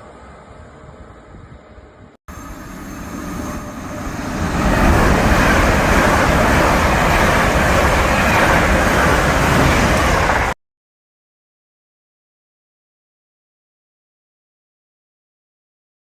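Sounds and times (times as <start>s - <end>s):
train passing at speed: 0.0s - 10.6s.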